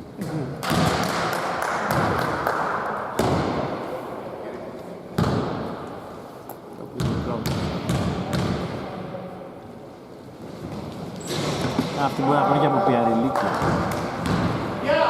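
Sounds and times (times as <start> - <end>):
din of voices: 12.0 - 13.9.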